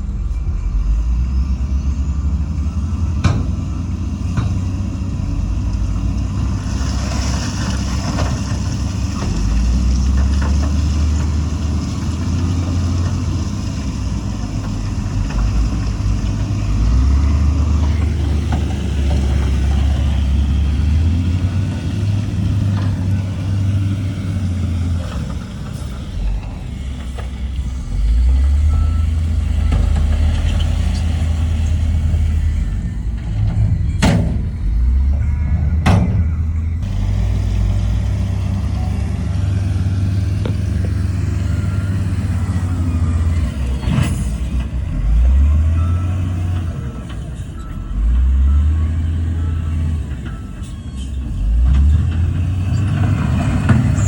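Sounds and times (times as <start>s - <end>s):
diesel machinery engine revving: 0.0s - 54.0s
reversing alarm beeping: 15.4s - 54.0s.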